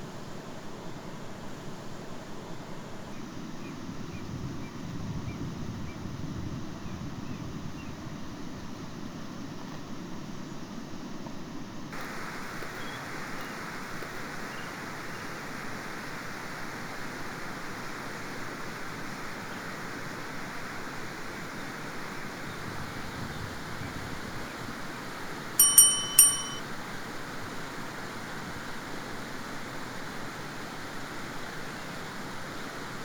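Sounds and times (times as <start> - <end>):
outdoor background noise: 0.0 - 26.6
ringing metallic clinks: 25.6 - 26.6.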